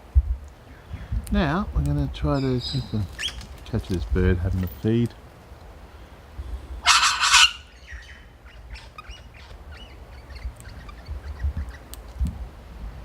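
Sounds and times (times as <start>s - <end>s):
bird harsh squawk: 6.6s - 11.9s.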